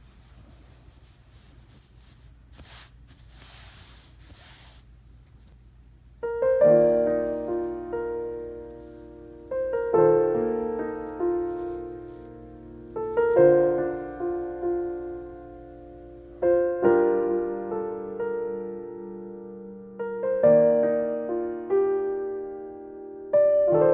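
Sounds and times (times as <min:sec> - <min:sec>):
soft noise swells: 0:00.0 - 0:05.6, 0:06.4 - 0:16.6
faint hiss: 0:00.0 - 0:16.6
slow piano chords: 0:06.2 - 0:23.9.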